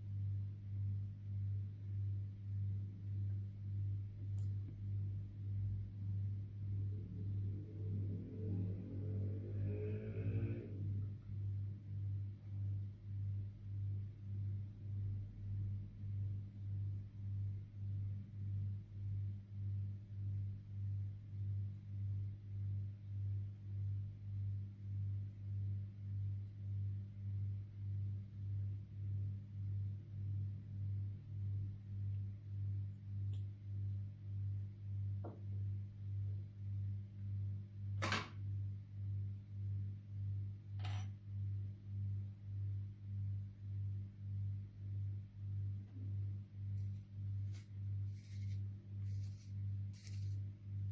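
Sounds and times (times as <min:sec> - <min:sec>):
low pulsing hum: 0:00.0 - 0:50.9.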